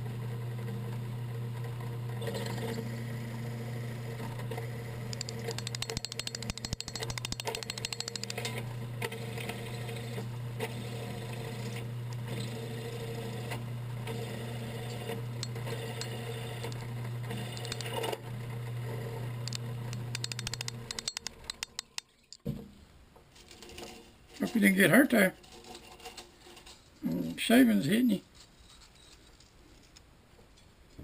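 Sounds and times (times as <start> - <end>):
metal lathe humming: 2.2 - 22.0
metal chips rattling: 5.1 - 8.6, 15.4 - 16.8, 17.5 - 18.0, 19.5 - 22.4.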